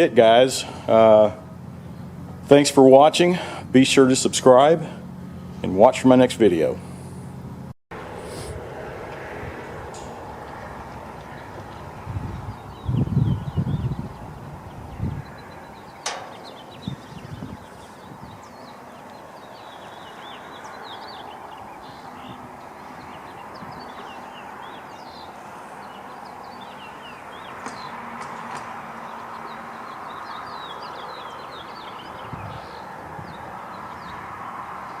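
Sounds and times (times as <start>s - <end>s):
small birds chirping: 9.9s - 35.0s.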